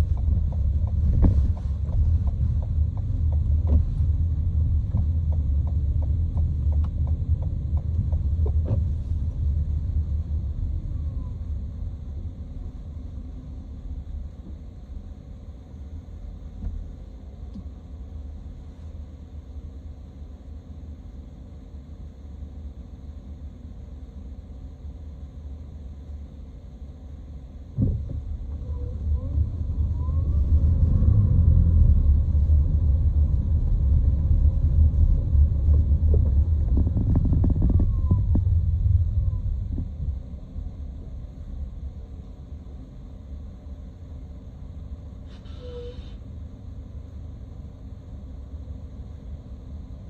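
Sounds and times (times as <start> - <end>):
low vehicle rumble: 0.0 - 50.0
brief hiss: 45.2 - 46.2.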